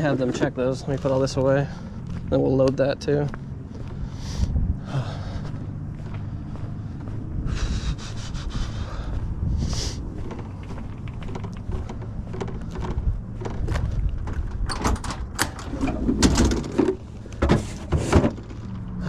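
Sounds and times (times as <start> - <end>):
steady low rumble: 0.0 - 19.0
tools knocking and clattering: 14.5 - 18.5.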